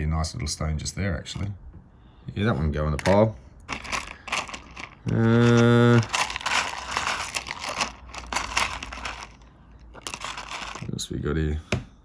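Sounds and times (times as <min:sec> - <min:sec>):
stones clicking and rattling: 0:03.0 - 0:11.0.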